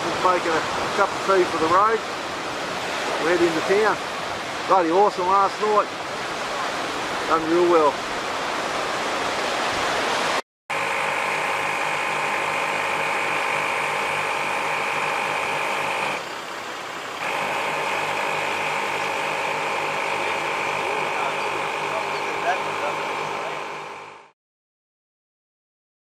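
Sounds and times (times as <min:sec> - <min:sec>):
vehicle engine running: 0:10.7 - 0:16.3, 0:17.2 - 0:24.3
engine whine: 0:10.7 - 0:16.5, 0:17.1 - 0:24.3.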